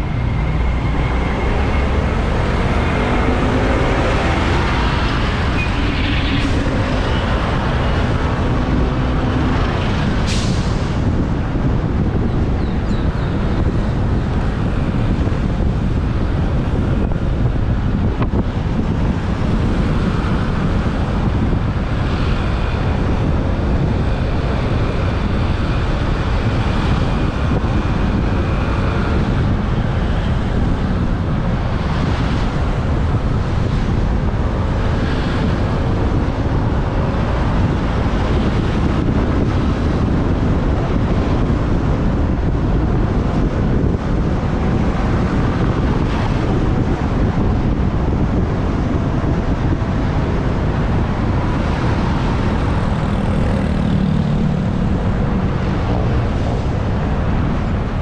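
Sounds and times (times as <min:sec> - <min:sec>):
traffic noise: 0:00.0 - 0:58.0
wind buffeting microphone: 0:00.0 - 0:58.0.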